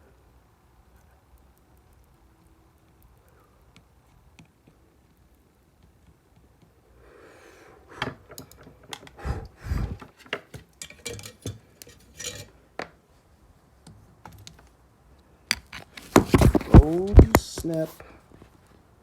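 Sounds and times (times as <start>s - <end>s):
faint hiss: 0.0s - 10.3s, 16.7s - 19.0s
metal tools clinking and clattering: 10.8s - 12.6s.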